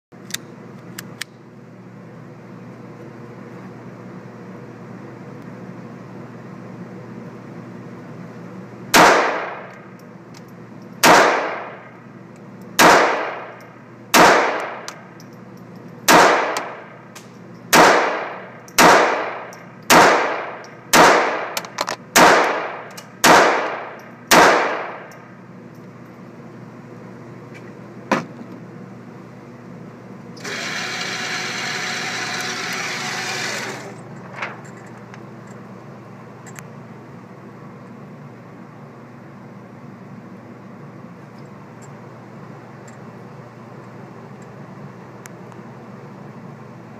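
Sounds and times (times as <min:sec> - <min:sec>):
pistol shots: 0:08.9 - 0:09.7, 0:11.0 - 0:11.9, 0:12.8 - 0:14.9, 0:16.1 - 0:16.8, 0:17.7 - 0:25.1.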